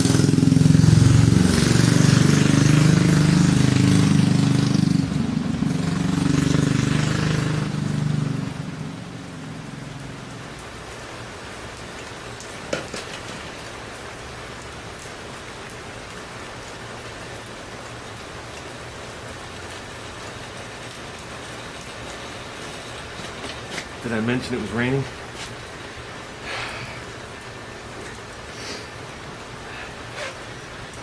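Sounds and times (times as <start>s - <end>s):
small engine running: 0.0s - 8.5s
heavy rain hissing: 0.0s - 31.0s.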